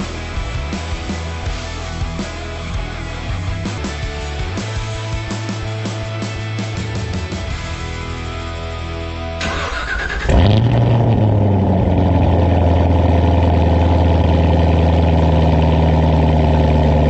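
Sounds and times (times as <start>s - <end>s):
background music: 0.0s - 10.4s
car engine starting and idling: 0.0s - 17.0s.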